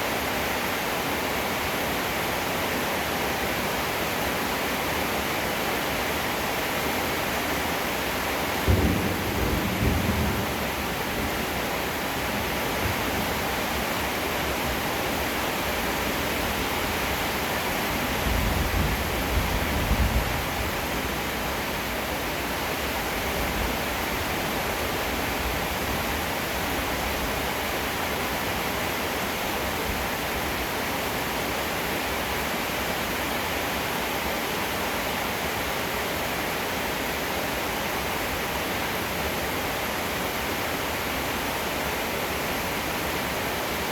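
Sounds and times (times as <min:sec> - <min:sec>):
heavy rain falling: 0:00.0 - 0:43.9
thunder rumbling: 0:08.6 - 0:13.5.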